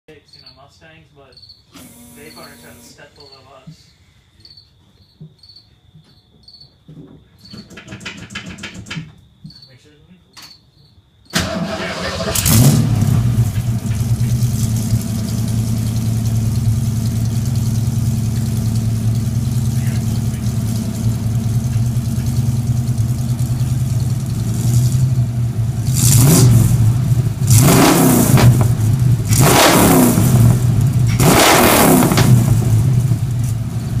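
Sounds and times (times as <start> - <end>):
car engine idling and revving: 11.4 - 34.0.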